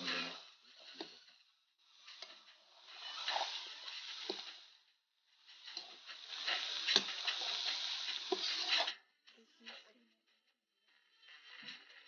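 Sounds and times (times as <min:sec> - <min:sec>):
meat sizzling in a wok: 0:00.0 - 0:09.0
spatula scraping and knocking: 0:01.9 - 0:04.7, 0:05.4 - 0:09.0.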